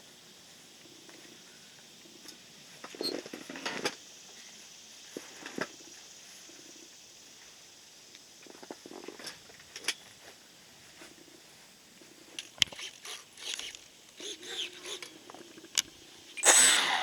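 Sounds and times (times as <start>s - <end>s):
model plane electric motor whine: 12.6s - 15.2s, 16.4s - 17.0s.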